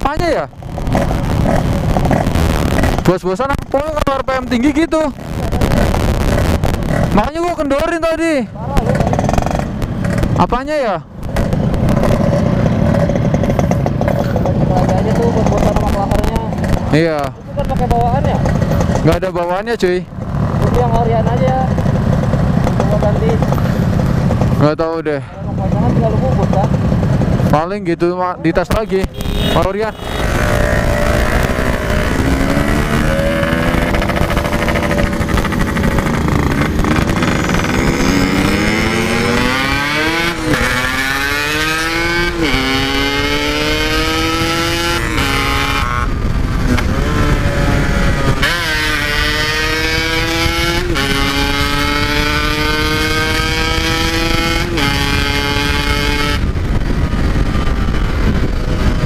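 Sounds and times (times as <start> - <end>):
wind on microphone: 0.0 - 7.3, 30.2 - 59.0
motorcycle engine accelerating: 0.0 - 27.7, 28.8 - 59.0.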